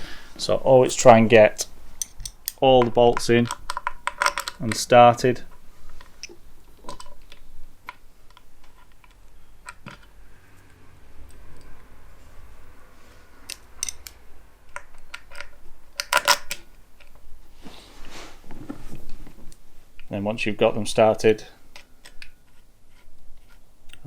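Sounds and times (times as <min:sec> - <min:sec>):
bolts clicking and tapping: 0:00.8 - 0:11.8, 0:13.4 - 0:17.2.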